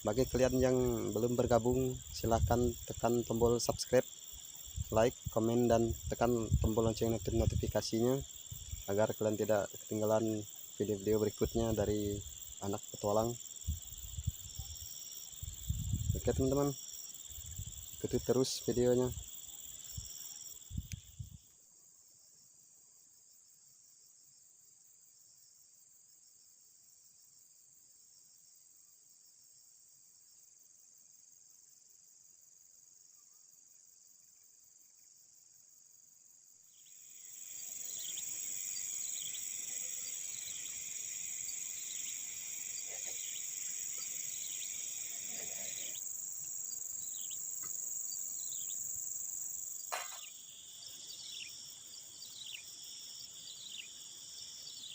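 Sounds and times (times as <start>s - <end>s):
crickets and insects chorus: 0.0s - 54.9s.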